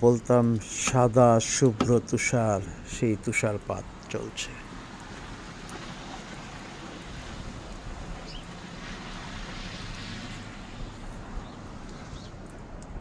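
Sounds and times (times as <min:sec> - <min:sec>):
blizzard wind blowing: 0:01.1 - 0:13.0
wind buffeting microphone: 0:04.6 - 0:13.0.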